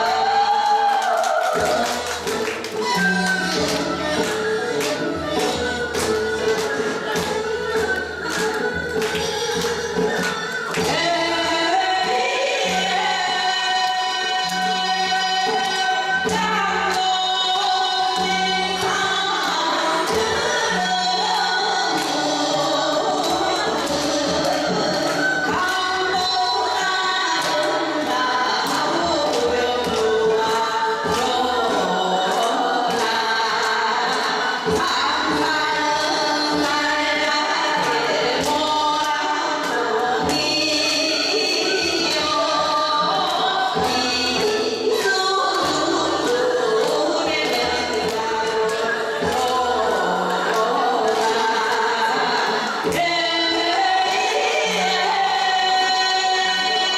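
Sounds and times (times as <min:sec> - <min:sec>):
folk song singing: 0:00.0 - 0:56.9
percussion beat: 0:00.0 - 0:56.9.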